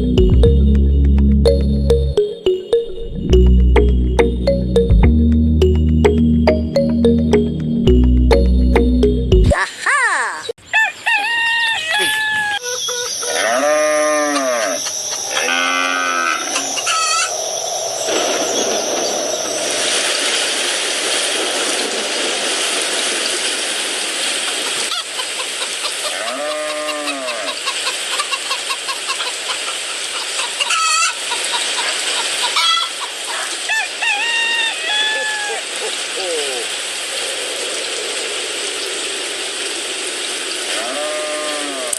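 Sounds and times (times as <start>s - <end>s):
rooster crowing: 10.7s - 12.6s, 32.6s - 35.7s
chickens clucking: 24.5s - 36.4s.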